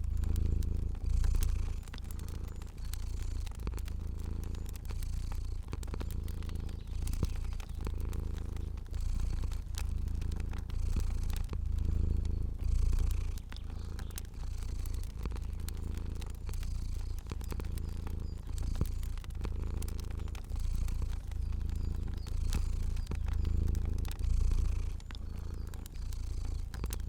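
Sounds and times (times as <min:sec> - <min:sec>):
cat purring: 0:00.0 - 0:27.0
fire crackling: 0:00.0 - 0:27.0.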